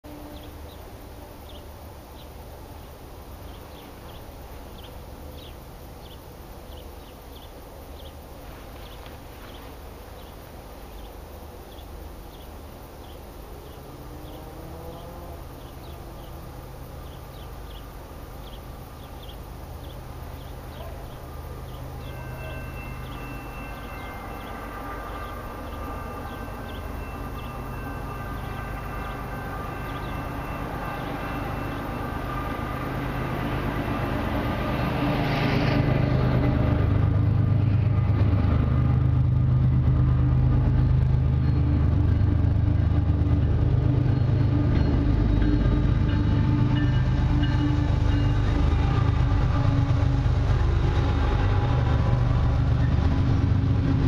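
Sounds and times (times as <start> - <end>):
distant freight train rumble: 0.0 - 54.0
bird chirps: 17.0 - 32.1
faint high tones: 19.9 - 33.7.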